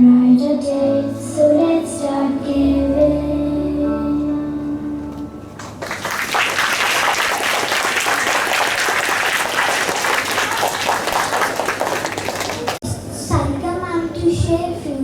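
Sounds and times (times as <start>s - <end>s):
audience clapping: 5.6s - 12.8s.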